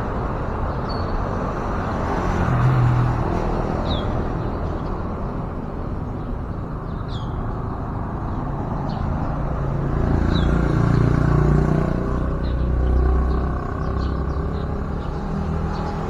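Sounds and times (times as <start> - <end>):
road traffic rumble: 0.0 - 16.0
vehicle passing: 1.5 - 5.6, 8.0 - 16.0.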